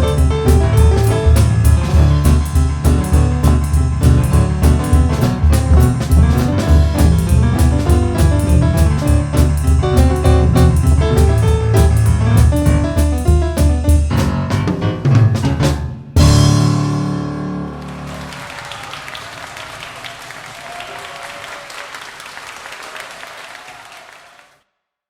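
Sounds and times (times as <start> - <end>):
driving drum beat: 0.0 - 16.8
rolling bass figure: 0.0 - 17.8
boogie-woogie piano: 0.0 - 18.3.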